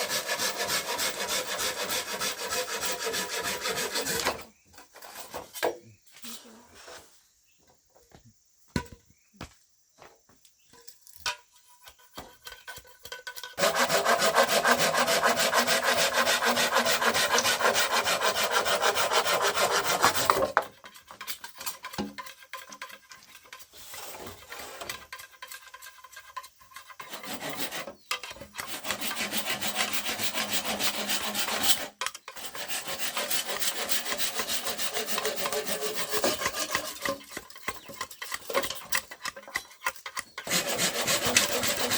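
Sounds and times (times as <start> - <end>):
tool scraping bamboo: 0.0 - 7.2, 11.2 - 41.9.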